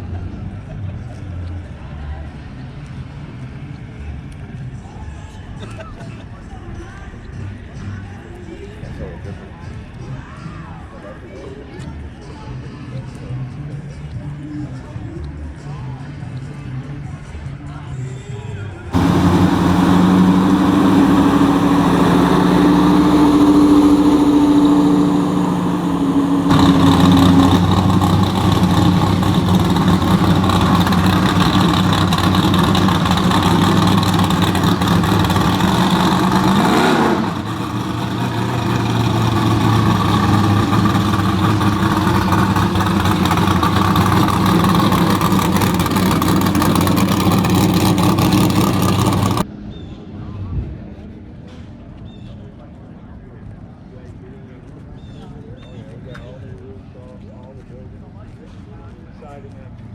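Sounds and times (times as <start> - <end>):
car engines running: 18.9 - 49.4.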